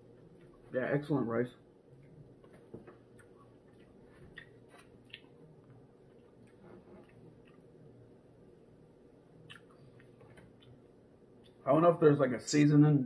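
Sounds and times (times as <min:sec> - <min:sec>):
low steady hum: 0:00.0 - 0:13.0
person chewing food: 0:02.0 - 0:07.9, 0:09.4 - 0:10.8.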